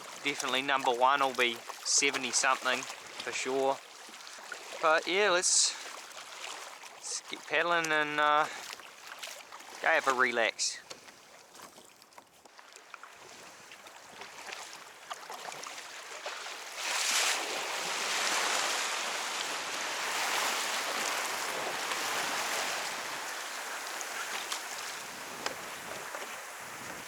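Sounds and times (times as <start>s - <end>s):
water splashing around kayak: 0.0s - 27.0s
loud hiss of surf: 16.9s - 27.0s.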